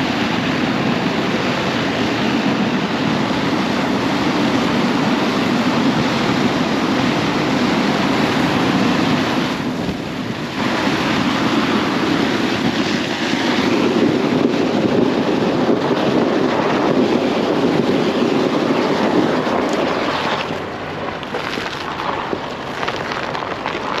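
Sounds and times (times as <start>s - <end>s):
tyres crunching over snow: 16.2s - 24.0s.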